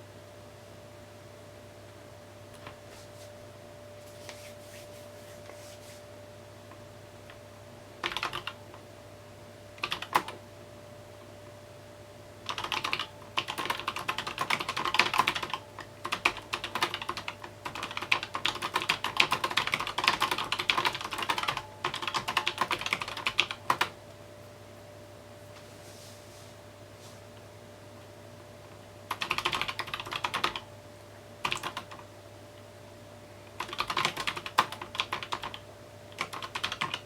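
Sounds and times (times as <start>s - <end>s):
typing on mechanical keyboard: 8.0s - 8.6s, 9.8s - 10.4s, 12.5s - 23.9s, 29.1s - 30.6s, 31.4s - 32.0s, 33.6s - 37.0s.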